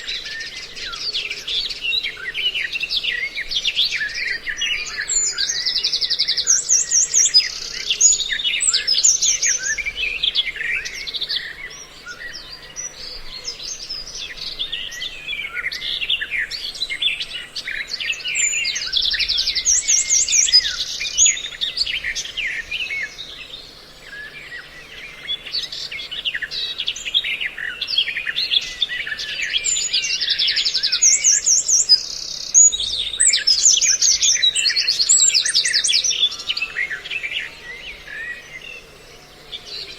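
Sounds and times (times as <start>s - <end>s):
songbird calls and chirps: 0.0s - 39.9s
rapid buzzy bird trills: 15.6s - 39.9s.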